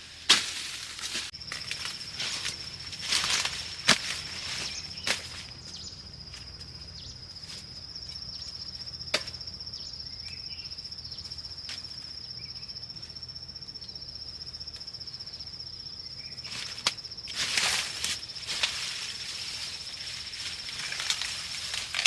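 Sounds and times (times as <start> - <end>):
rustle: 0.0 - 9.4, 16.3 - 22.0
insect trilling: 1.3 - 22.0.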